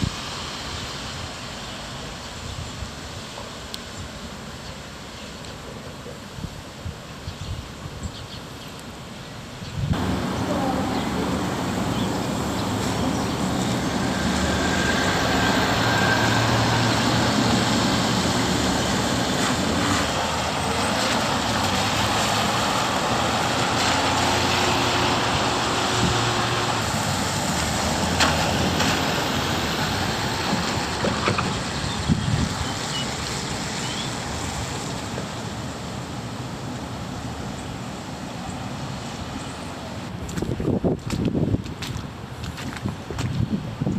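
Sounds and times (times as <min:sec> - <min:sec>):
rain: 0:00.0 - 0:43.9
road noise: 0:00.0 - 0:43.9
vehicle engine hum: 0:09.9 - 0:42.8.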